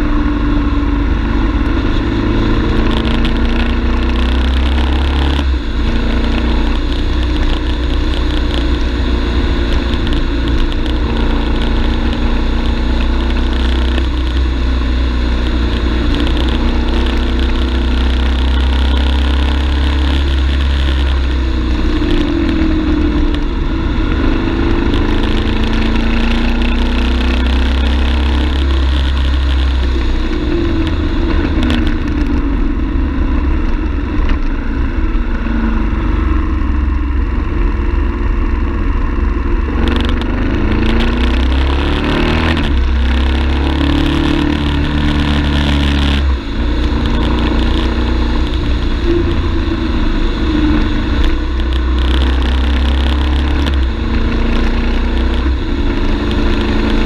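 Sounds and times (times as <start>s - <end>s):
deep rumble: 0.0s - 57.0s
motorcycle engine running: 0.0s - 57.0s.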